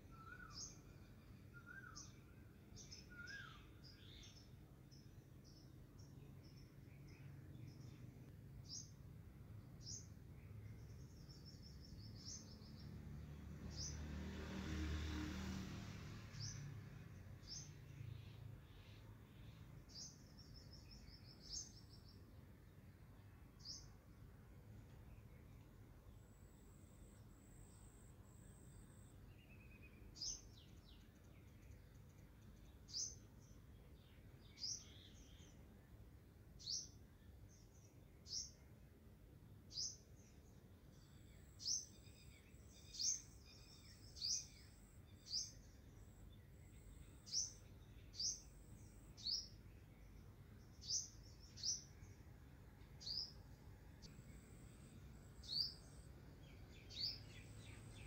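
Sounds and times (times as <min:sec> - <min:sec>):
small bird chirping: 0:00.0 - 0:14.1, 0:16.2 - 0:22.4, 0:24.7 - 0:35.6, 0:36.6 - 0:38.8, 0:39.7 - 0:58.0.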